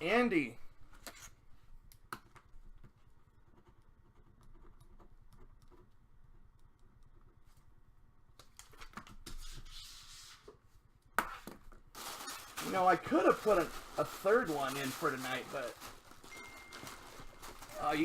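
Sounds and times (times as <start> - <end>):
packaging rustle: 11.9 - 18.0.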